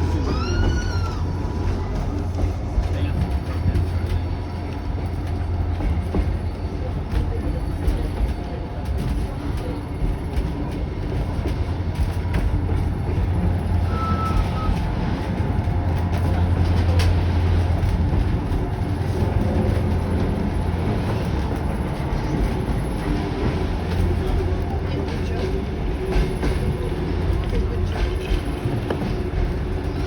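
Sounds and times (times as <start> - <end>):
train carriages rumbling on track: 0.0 - 30.0.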